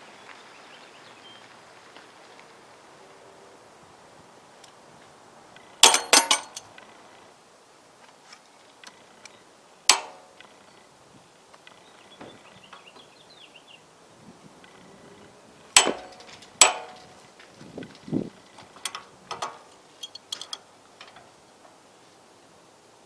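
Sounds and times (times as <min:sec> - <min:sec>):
hand tools clanking on metal: 0:05.8 - 0:06.7, 0:09.9 - 0:10.4, 0:15.7 - 0:21.8.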